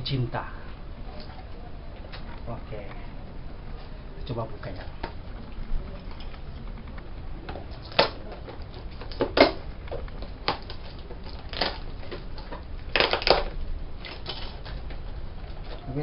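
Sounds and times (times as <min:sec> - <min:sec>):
parcel packaging crackling: 0:04.6 - 0:16.0.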